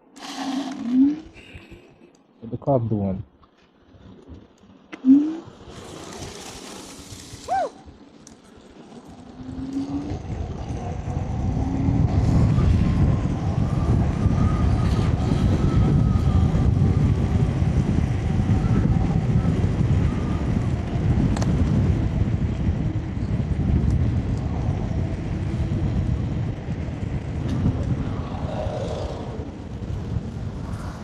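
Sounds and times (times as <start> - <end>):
wind rushing over microphone: 5.0 - 31.0.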